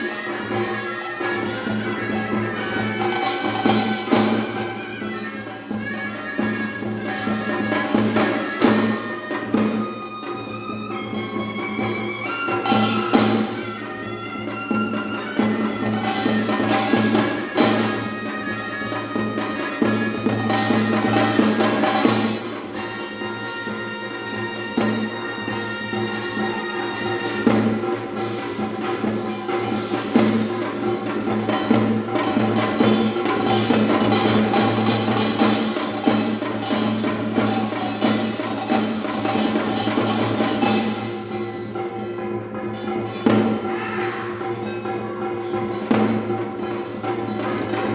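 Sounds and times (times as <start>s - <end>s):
reedy double-reed melody: 0.0s - 31.4s
rapid hand-drum strokes: 0.0s - 47.9s.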